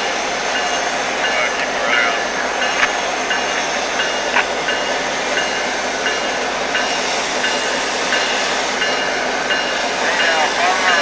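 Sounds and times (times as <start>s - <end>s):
train rolling on track: 0.0s - 11.0s.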